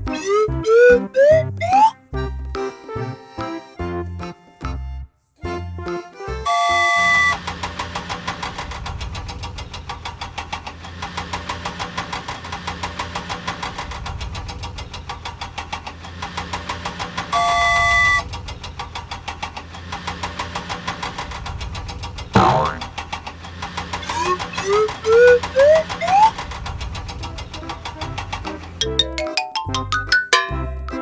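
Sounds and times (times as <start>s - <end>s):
cartoon engine chugging: 0.0s - 2.8s, 16.9s - 19.2s, 20.3s - 31.0s.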